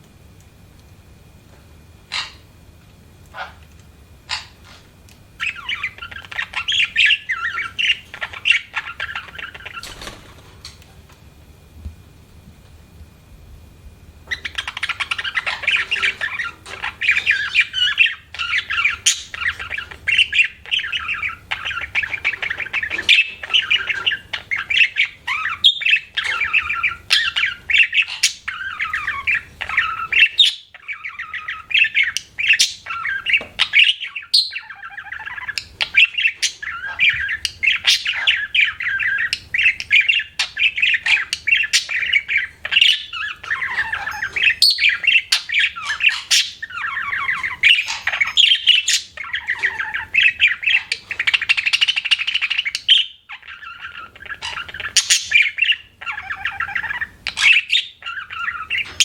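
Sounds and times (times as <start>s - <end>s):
budgerigar warbling and chattering: 2.1s - 2.5s, 4.3s - 4.8s, 5.4s - 10.0s, 14.3s - 59.0s.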